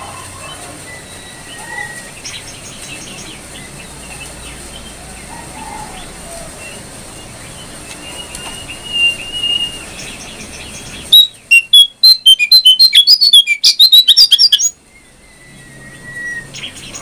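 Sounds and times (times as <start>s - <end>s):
songbird singing: 0.0s - 17.0s.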